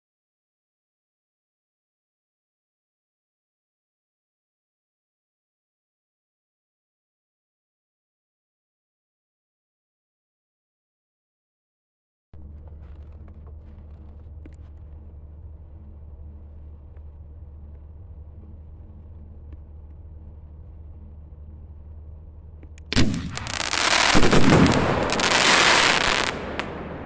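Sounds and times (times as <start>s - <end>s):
low background rumble: 12.4s - 27.0s
firework bang: 22.9s - 27.0s
firework crackling: 22.9s - 27.0s.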